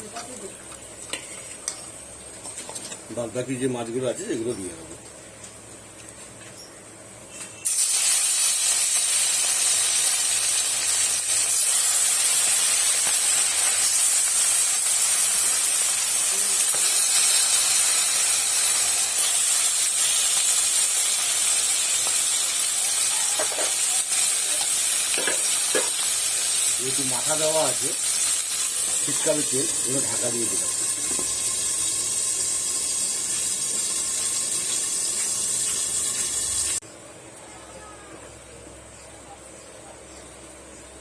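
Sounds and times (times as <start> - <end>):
fish sizzling in hot oil: 7.3 - 36.8.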